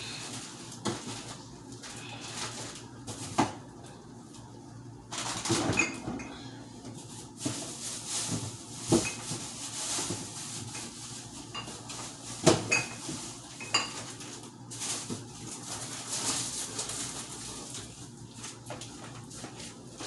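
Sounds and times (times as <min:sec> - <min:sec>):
dishes and utensils clinking: 0:11.5 - 0:14.2.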